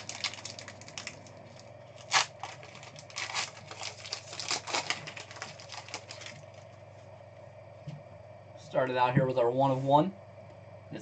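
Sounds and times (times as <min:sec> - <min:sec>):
packaging crinkling: 0:00.0 - 0:06.8.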